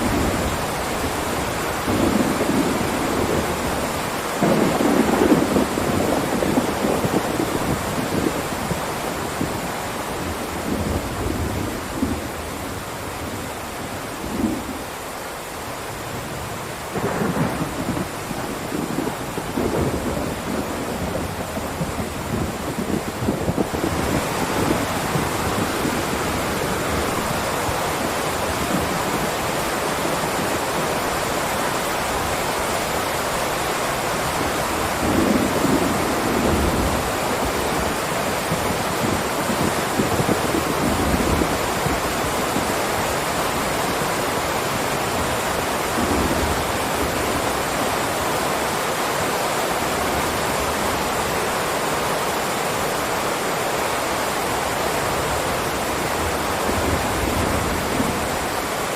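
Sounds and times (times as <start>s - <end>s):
distant thunder rumbling: 0.0s - 9.7s, 16.8s - 30.9s, 34.1s - 47.8s
heavy rain: 0.0s - 58.9s.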